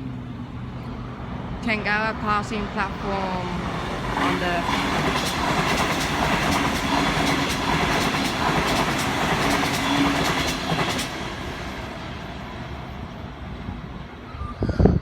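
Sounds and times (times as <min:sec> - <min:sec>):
electric train passing: 0:00.0 - 0:14.8
wheels clicking over rail joints: 0:04.0 - 0:11.2.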